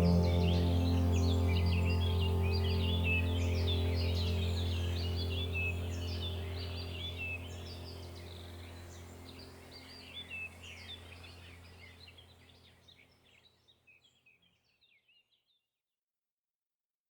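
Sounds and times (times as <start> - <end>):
steady low hum: 0.0 - 12.3
small birds chirping: 0.0 - 15.5.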